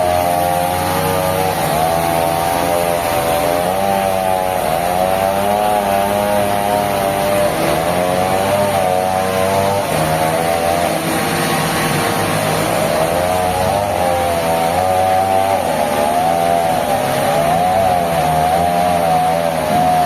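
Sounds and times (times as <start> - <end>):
sawmill saw running: 0.0 - 20.0.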